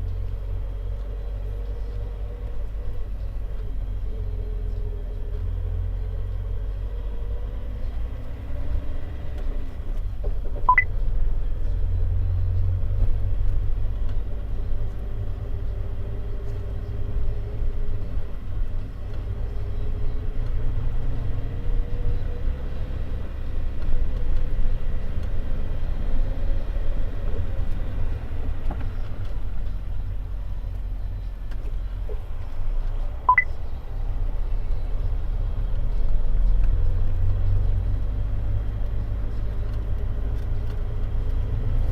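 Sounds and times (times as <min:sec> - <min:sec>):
road and drivetrain rumble: 0:00.0 - 0:41.9
faint engine tone: 0:10.6 - 0:13.0, 0:27.9 - 0:38.0
brief sharp chirps: 0:33.3 - 0:33.5.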